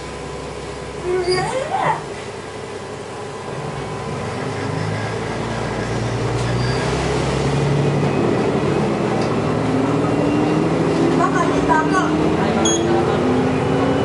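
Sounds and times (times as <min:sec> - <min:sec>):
diesel railcar engine accelerating: 0:00.0 - 0:14.0
train running rumble: 0:00.0 - 0:14.0.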